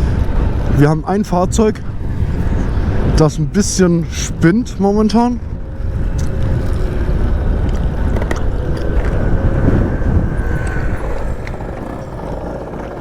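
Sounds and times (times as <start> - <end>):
wind rushing over microphone: 0.0 - 13.0
scooter engine running: 5.6 - 13.0.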